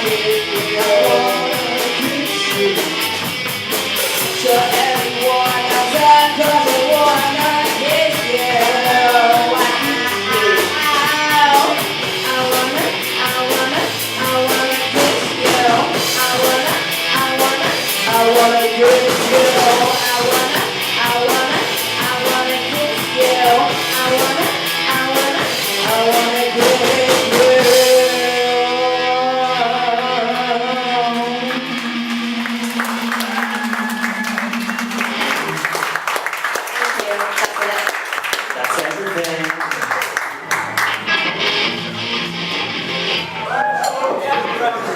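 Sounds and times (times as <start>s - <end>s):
live rock band playing: 0.0s - 36.6s, 39.9s - 44.9s.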